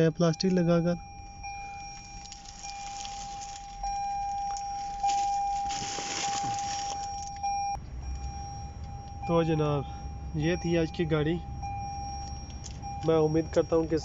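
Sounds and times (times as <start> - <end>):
rustling handling noise: 1.8 - 7.5.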